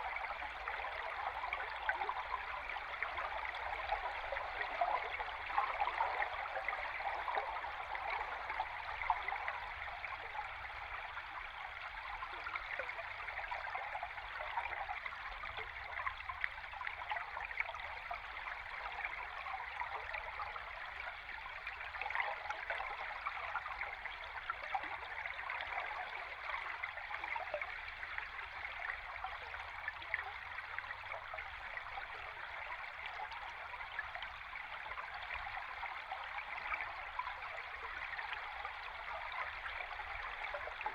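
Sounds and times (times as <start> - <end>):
stream water underwater: 0.0 - 40.9.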